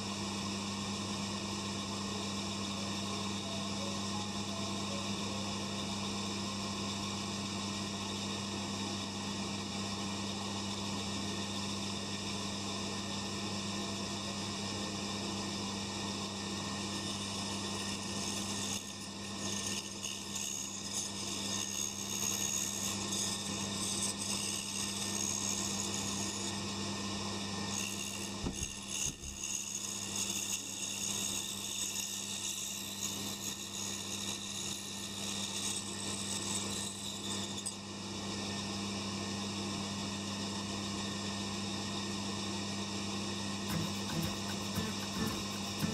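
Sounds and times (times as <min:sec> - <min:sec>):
band saw motor humming: 0:43.7 - 0:45.9
wooden pieces rubbing and clicking: 0:43.7 - 0:45.9.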